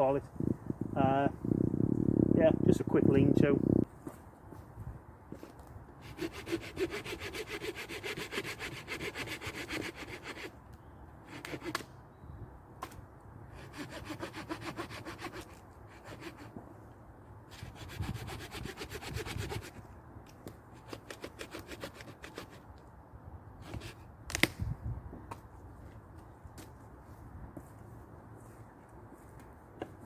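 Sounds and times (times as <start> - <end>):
hand saw cutting wood: 6.0 - 10.6, 11.2 - 11.8, 13.5 - 16.6, 17.5 - 19.8, 20.7 - 22.6.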